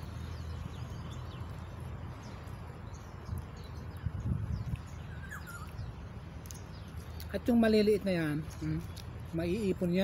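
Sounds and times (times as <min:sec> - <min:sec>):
faint bird chirps: 0:00.0 - 0:07.1.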